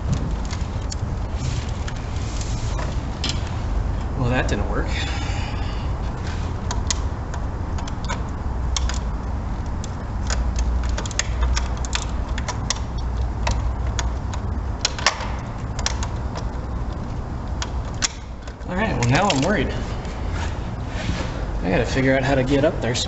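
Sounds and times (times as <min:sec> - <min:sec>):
steady low rumble: 0:00.0 - 0:23.0
hand tools clicking and clinking: 0:17.9 - 0:19.7.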